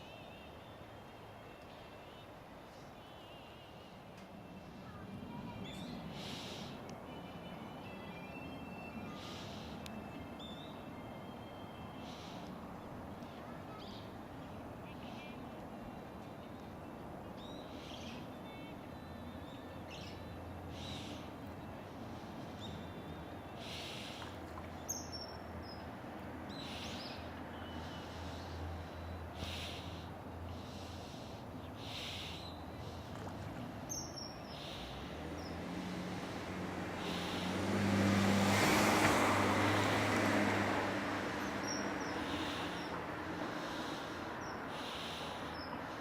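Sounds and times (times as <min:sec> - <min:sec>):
motor vehicle passing: 0:34.6 - 0:46.0.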